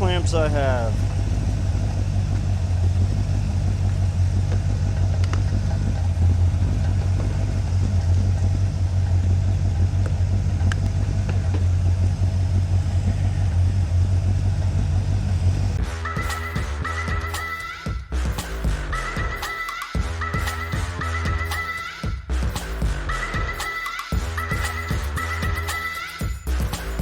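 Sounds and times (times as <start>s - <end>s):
car engine idling: 0.0s - 17.6s.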